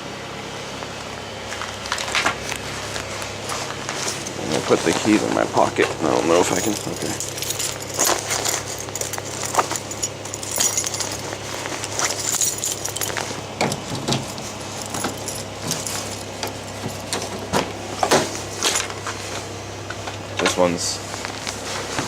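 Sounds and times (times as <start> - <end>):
low hum: 0.0 - 20.4
keys jingling: 3.3 - 17.5.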